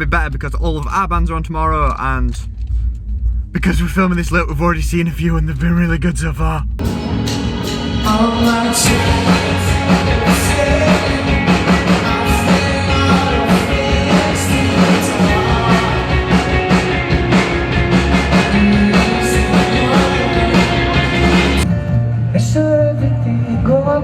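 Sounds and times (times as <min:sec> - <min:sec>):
steady drum beat: 0:06.8 - 0:21.6
loud rock music: 0:06.8 - 0:23.9.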